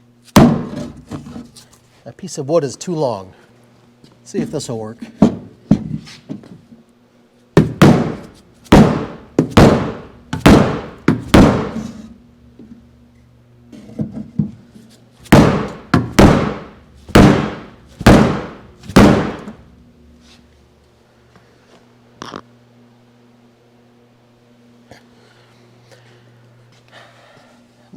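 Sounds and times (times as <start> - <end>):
hammer knocking on car door: 7.6 - 11.8, 15.4 - 19.6.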